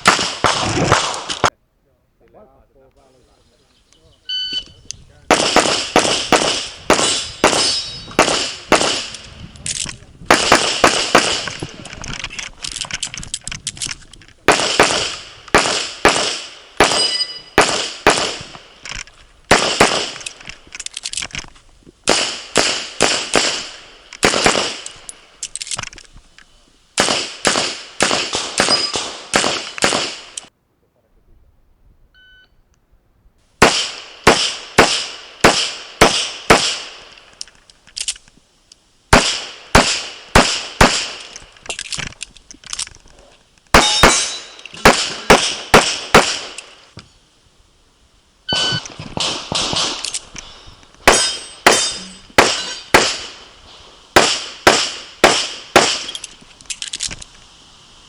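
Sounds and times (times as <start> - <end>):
rapid pistol shots: 0.0 - 1.5, 5.3 - 9.3, 10.3 - 11.8, 14.4 - 18.8, 19.5 - 20.4, 22.1 - 25.1, 27.0 - 30.5, 33.6 - 37.1, 39.1 - 41.4, 43.7 - 46.8, 48.5 - 50.3, 51.0 - 53.5, 54.1 - 56.3.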